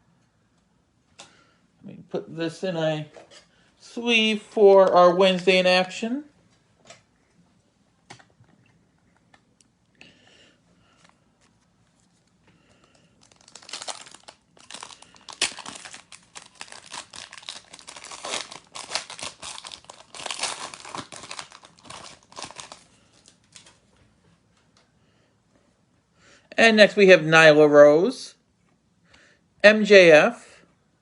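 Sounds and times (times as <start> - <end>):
wrapper tearing and crinkling: 12.9 - 23.8.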